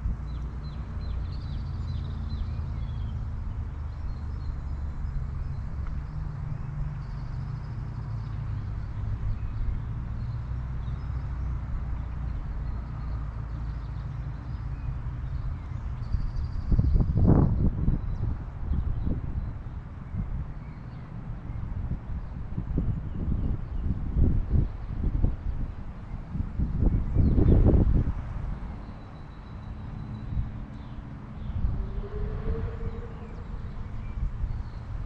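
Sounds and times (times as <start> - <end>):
low rumble: 30.1 - 35.0.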